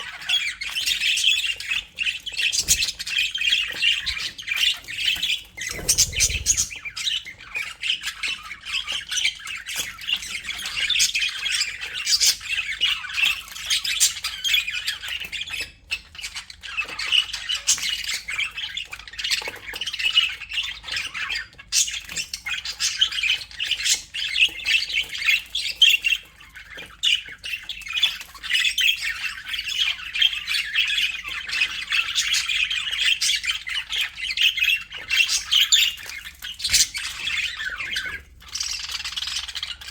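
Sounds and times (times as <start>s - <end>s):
budgerigars chattering: 5.6s - 6.9s.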